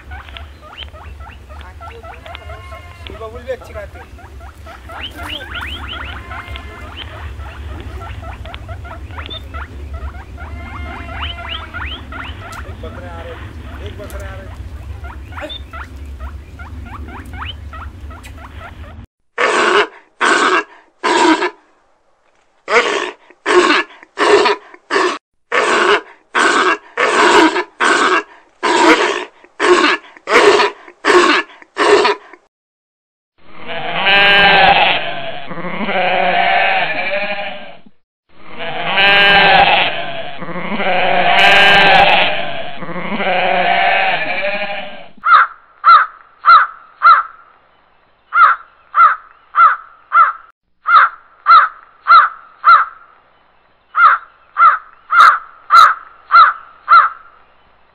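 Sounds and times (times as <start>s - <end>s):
goat bleating: 1.6s - 8.8s, 10.1s - 15.8s, 33.6s - 37.8s, 38.5s - 45.1s
crow cawing: 4.4s - 7.8s, 45.2s - 47.4s, 48.3s - 53.0s, 54.0s - 57.3s.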